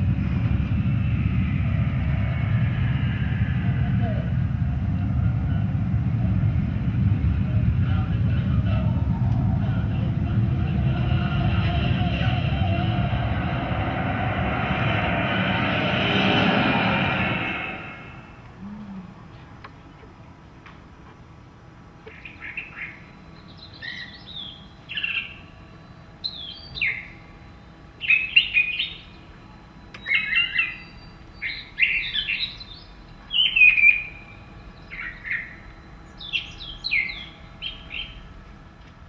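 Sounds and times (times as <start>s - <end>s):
faint steady hum: 0.0s - 39.0s
birds chirping and calling: 22.1s - 25.5s, 26.2s - 27.2s, 28.0s - 29.2s, 30.0s - 38.2s.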